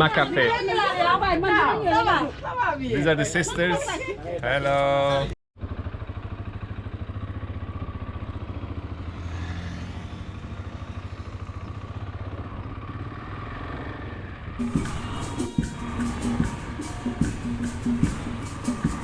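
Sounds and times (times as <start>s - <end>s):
motorcycle engine revving: 5.6s - 19.0s
music: 14.6s - 19.0s.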